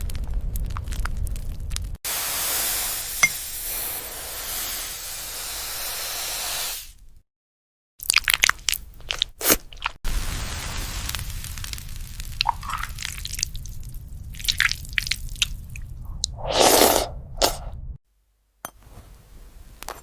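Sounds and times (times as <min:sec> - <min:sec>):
steady hiss: 0:02.1 - 0:07.0, 0:10.1 - 0:12.9.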